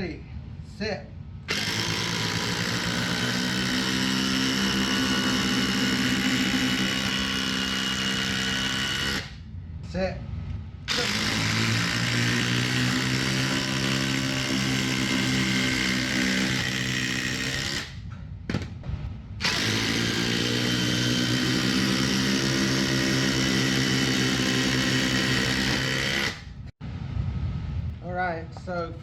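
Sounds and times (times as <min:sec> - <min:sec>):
impact drivers driving screws: 0:01.5 - 0:09.4, 0:10.9 - 0:18.6, 0:19.4 - 0:26.6.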